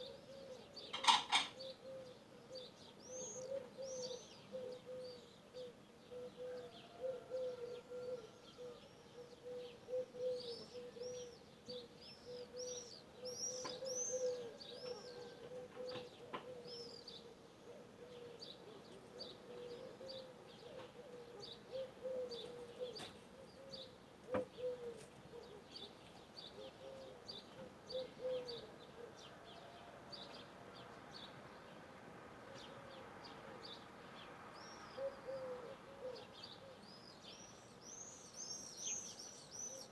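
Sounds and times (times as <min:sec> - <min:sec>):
birds chirping: 0:00.8 - 0:01.7.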